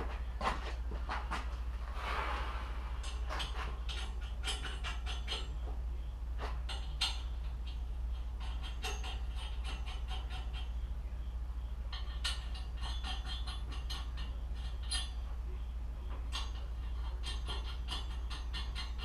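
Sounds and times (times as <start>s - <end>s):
steady low hum: 0.0s - 19.0s
clicks and clinks on metal parts: 3.0s - 5.7s, 6.4s - 10.7s, 11.9s - 15.3s, 16.2s - 19.0s.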